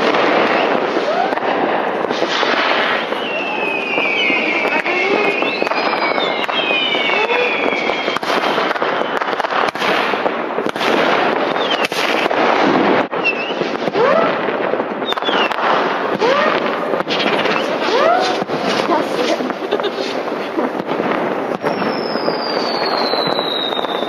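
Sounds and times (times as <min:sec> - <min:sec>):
firecracker bangs: 0:00.0 - 0:24.0
firework crackle: 0:00.0 - 0:24.0
rocket whistles: 0:00.2 - 0:01.4, 0:02.2 - 0:10.0, 0:11.5 - 0:12.3, 0:13.1 - 0:14.4, 0:15.0 - 0:18.8, 0:21.6 - 0:24.0.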